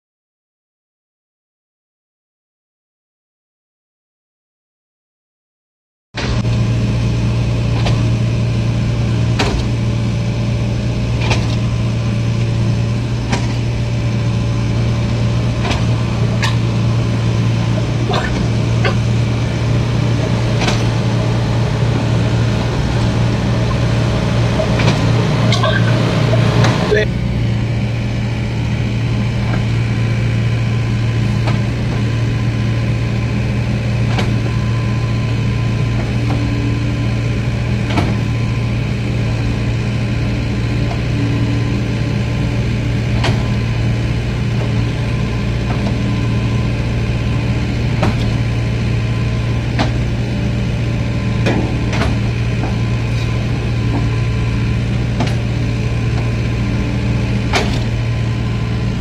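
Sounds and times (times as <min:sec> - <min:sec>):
diesel engine humming: 0:08.5 - 0:27.1, 0:30.6 - 0:59.0.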